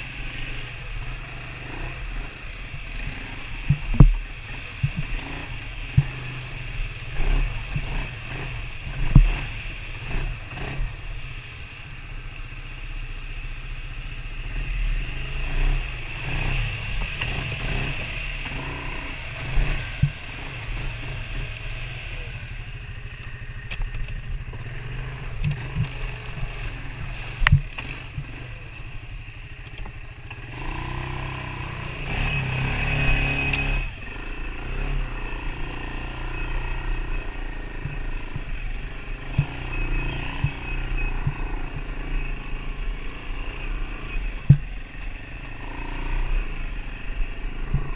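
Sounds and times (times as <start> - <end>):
knocks and rattles over rough trail: 0.0 - 12.6, 14.4 - 47.9
engine whine: 0.0 - 47.9
off-road vehicle engine droning: 0.0 - 47.9.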